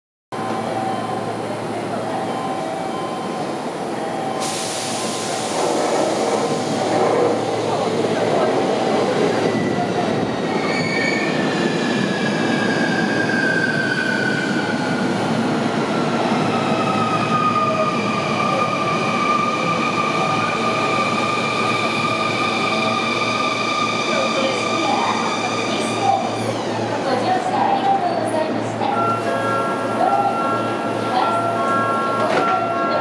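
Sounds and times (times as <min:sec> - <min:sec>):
train wheels on rails: 0:04.0 - 0:28.0.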